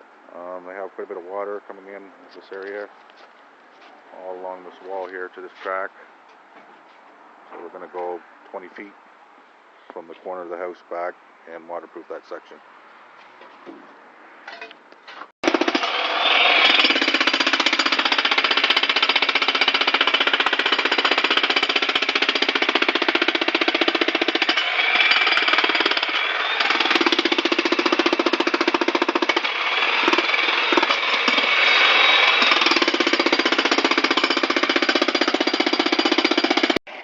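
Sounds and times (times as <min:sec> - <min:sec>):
jackhammer hammering: 0:15.4 - 0:36.8.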